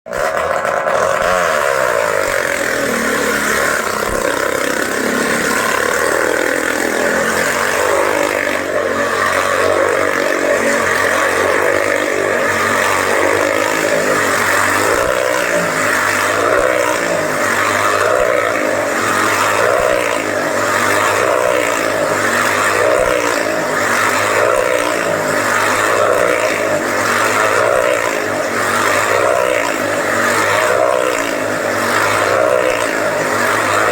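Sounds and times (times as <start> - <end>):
motorcycle engines circling: 0.1 - 33.9.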